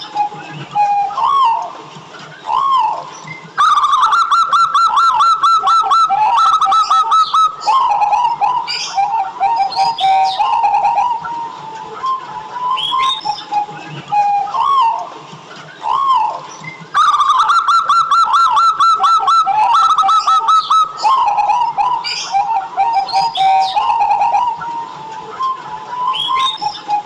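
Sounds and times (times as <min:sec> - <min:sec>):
doves cooing: 0:00.0 - 0:27.0
faint small bird chirps: 0:00.0 - 0:27.0.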